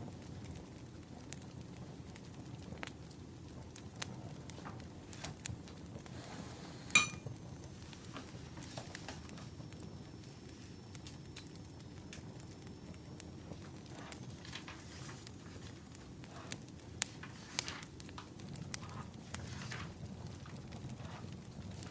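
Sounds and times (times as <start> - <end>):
wood fire crackling: 0.0 - 21.9
sharp ringing clink: 7.0 - 7.3.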